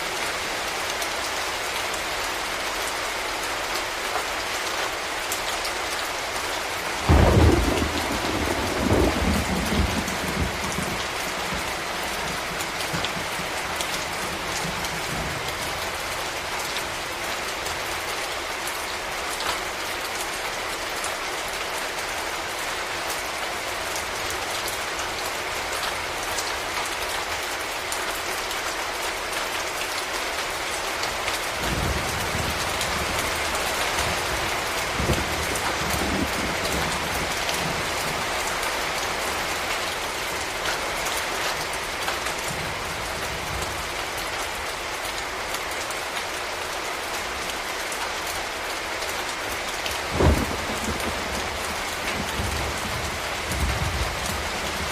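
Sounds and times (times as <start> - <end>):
steady rain hissing: 0.0 - 54.9
thunder clap and rumble: 7.1 - 15.8, 31.6 - 38.4, 50.0 - 54.9.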